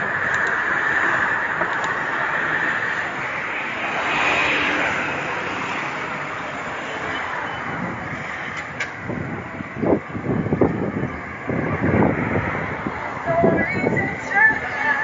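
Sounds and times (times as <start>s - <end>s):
road traffic noise: 0.0s - 15.0s
wind on microphone: 7.6s - 15.0s.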